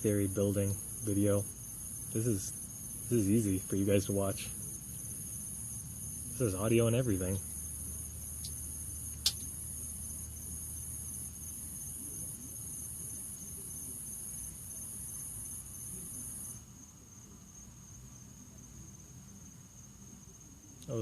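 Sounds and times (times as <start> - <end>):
cricket trilling: 0.0 - 21.0
sharp click: 9.2 - 9.5.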